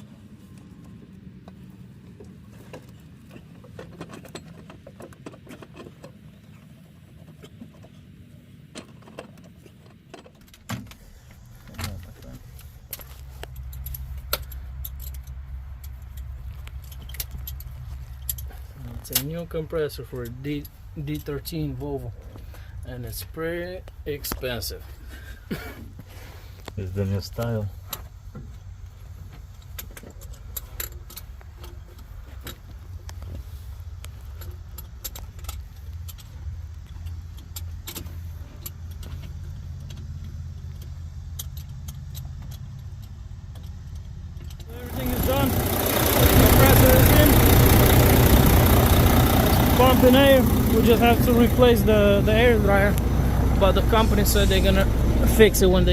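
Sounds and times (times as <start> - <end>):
engine idling: 11.0 - 55.9
light metallic clinks and ticks: 11.7 - 25.7, 26.6 - 55.9
sharp metallic clicks: 34.0 - 55.9
low engine drone: 44.6 - 55.9.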